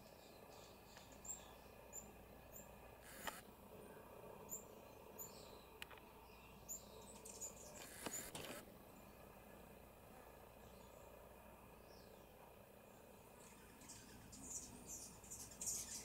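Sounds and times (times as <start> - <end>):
faint high bird chirps: 0.0 - 3.4, 11.8 - 16.0.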